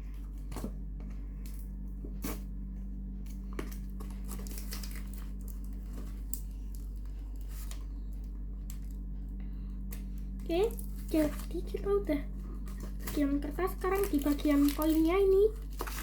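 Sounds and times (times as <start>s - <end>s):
steady low hum: 0.0s - 16.0s
packaging crinkling and tearing: 3.6s - 7.8s, 10.6s - 11.9s, 12.6s - 16.0s.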